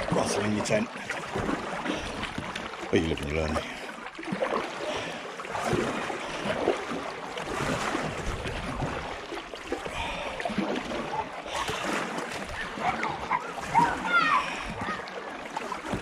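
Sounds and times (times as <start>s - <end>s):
paddle strokes: 0.0s - 16.0s
water splashing: 0.0s - 16.0s
wind rumbling on microphone: 7.6s - 9.2s.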